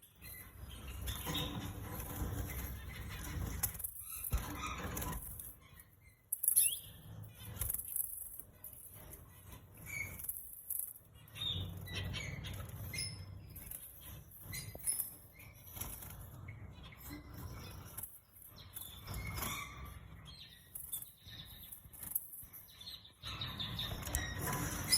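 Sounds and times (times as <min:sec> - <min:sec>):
canaries fluttering wings: 0:00.6 - 0:05.6, 0:11.4 - 0:16.4, 0:23.6 - 0:24.9.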